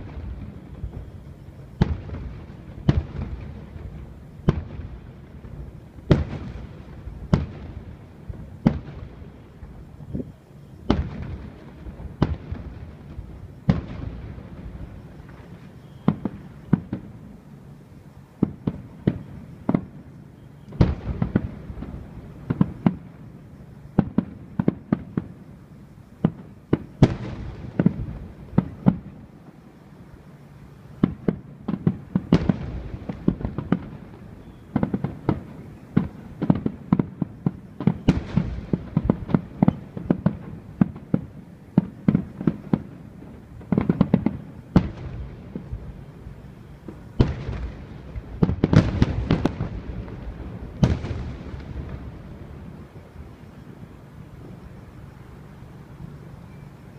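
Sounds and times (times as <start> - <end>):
fireworks bangs echoing: 0.0 - 10.0, 10.8 - 17.3, 20.8 - 23.2, 26.2 - 29.2, 31.0 - 52.9.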